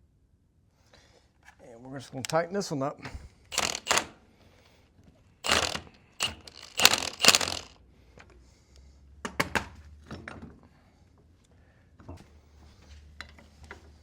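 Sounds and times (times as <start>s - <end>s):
loud metal-on-metal bursts: 3.5s - 4.1s, 5.4s - 7.7s.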